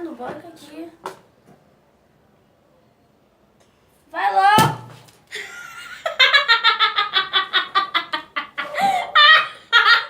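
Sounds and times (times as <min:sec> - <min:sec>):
girls laughing in high cackles: 0:05.3 - 0:10.0.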